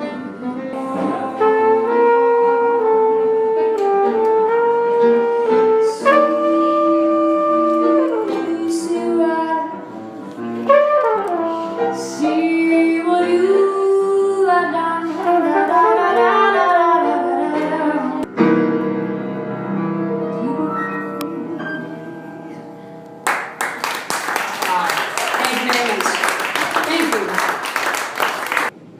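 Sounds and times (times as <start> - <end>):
saxophone-like melody: 0.0 - 18.5
jazz band playing: 0.0 - 20.6.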